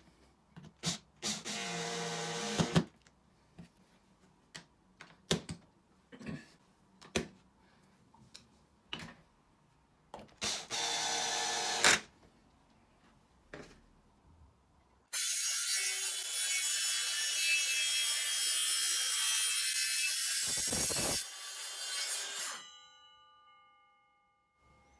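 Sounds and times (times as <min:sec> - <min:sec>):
cordless drill driving screws: 0:10.4 - 0:12.0.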